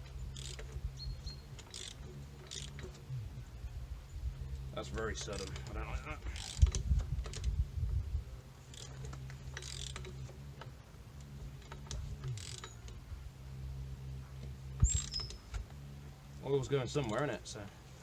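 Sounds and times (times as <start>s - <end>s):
metal clunks of engine cranking: 0.0s - 3.4s, 4.7s - 7.6s, 8.7s - 13.1s, 14.2s - 15.8s
wrench ratchet clicks: 0.3s - 0.8s, 1.6s - 3.0s, 5.1s - 7.5s, 8.7s - 10.2s, 11.7s - 13.0s.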